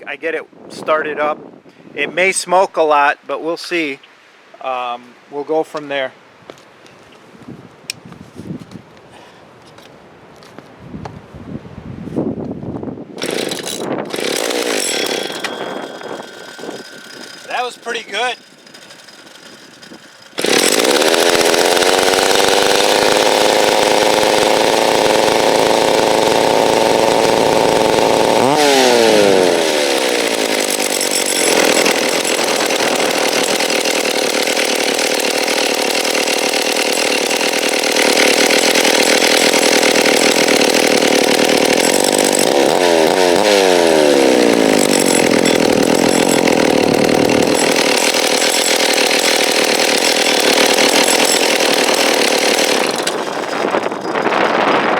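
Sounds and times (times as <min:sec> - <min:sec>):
chainsaw engine running: 0:13.2 - 0:54.9.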